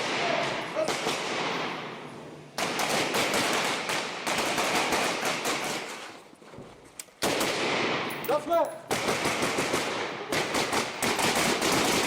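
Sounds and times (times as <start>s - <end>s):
toy guns firing automatic bursts: 8.9s - 12.0s.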